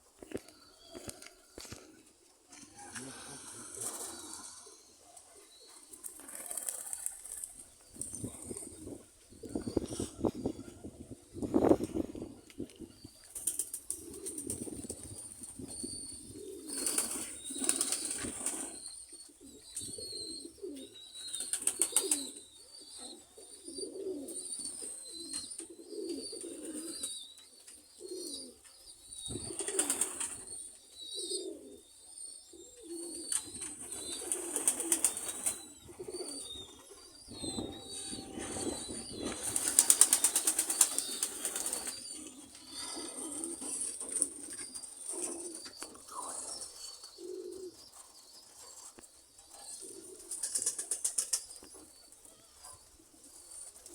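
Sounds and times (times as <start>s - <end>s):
pigeons cooing: 0.0s - 53.9s
wings flapping: 5.9s - 8.4s, 16.7s - 18.8s, 21.4s - 22.3s, 29.5s - 30.4s, 33.4s - 35.6s, 39.2s - 42.3s, 50.2s - 51.6s.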